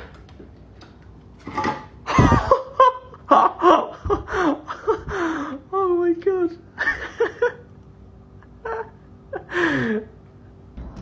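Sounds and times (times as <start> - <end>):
person laughing: 2.1 - 5.6, 6.8 - 7.7, 8.4 - 10.1.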